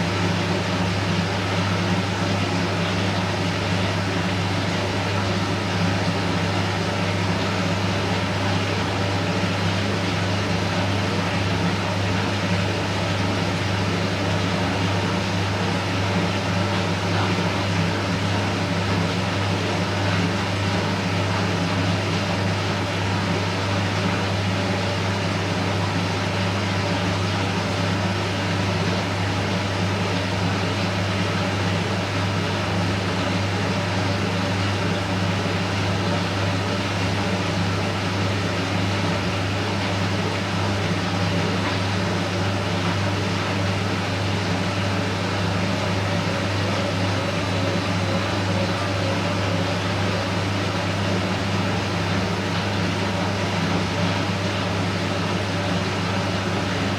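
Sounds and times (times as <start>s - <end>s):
washing machine humming and whirring: 0.0s - 56.9s.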